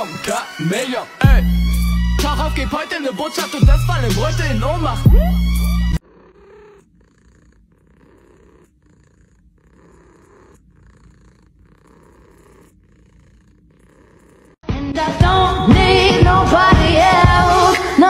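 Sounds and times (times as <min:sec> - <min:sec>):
loud hip-hop music: 0:00.0 - 0:05.9
cat purring: 0:05.9 - 0:14.6.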